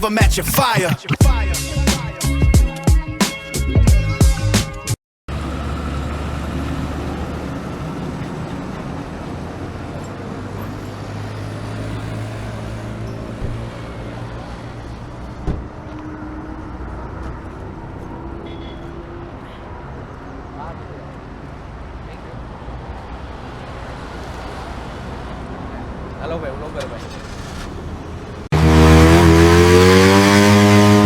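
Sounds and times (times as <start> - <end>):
road noise: 5.3 - 31.0
short thump: 15.4 - 15.7
motorcycle engine running: 28.5 - 31.0.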